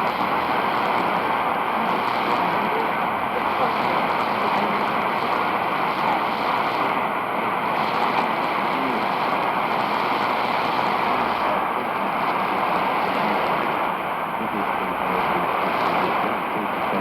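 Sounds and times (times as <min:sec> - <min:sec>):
shortwave radio static hiss: 0:00.0 - 0:17.0.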